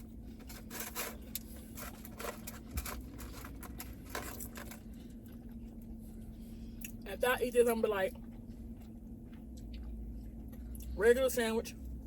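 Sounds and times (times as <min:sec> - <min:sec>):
food packaging rustling: 0:00.0 - 0:05.1
low electrical hum: 0:00.0 - 0:12.0.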